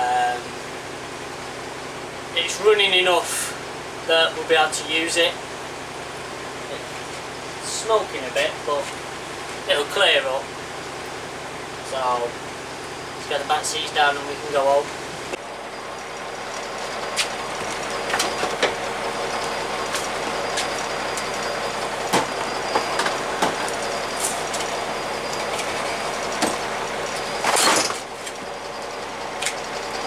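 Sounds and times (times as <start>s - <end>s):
bus diesel engine running: 0.0s - 30.0s
clunks and knocks: 16.6s - 28.5s.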